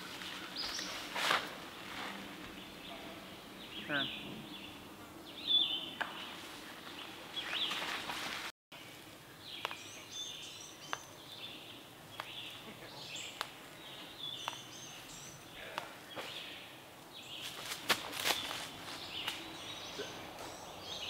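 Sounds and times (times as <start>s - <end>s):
birds chirping and calling: 2.4s - 8.1s, 9.4s - 17.6s, 18.2s - 21.0s.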